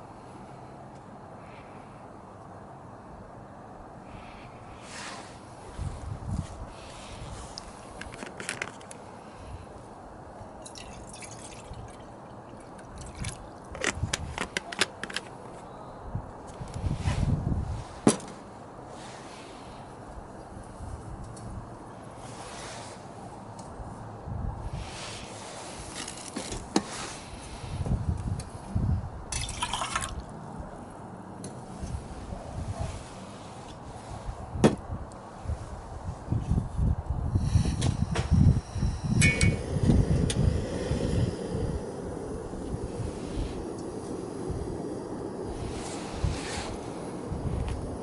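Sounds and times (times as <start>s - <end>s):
sharp pops and crackles: 7.5s - 9.0s, 12.7s - 15.5s
liquid being poured: 10.6s - 13.8s, 29.3s - 30.2s.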